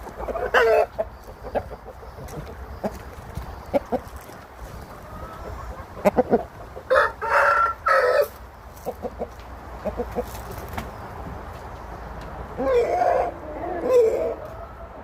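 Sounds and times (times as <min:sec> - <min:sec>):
rooster clucking: 0:00.0 - 0:11.3, 0:12.5 - 0:15.0
rooster crowing: 0:06.9 - 0:08.4.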